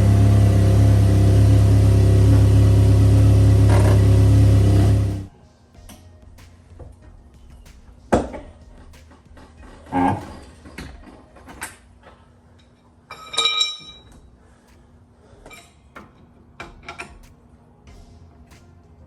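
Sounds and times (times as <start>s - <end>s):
metal tools clinking: 12.6s - 14.2s.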